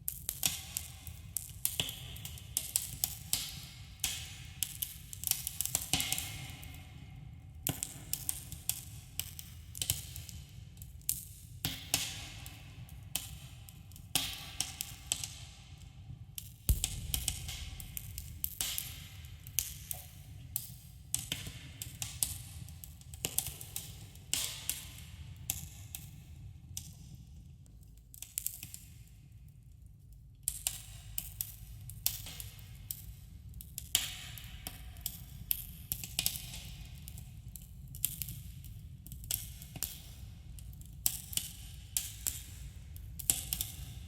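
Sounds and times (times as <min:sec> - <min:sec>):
campfire crackling and popping: 0:16.7 - 0:19.1
low steady rumble: 0:16.7 - 0:19.1.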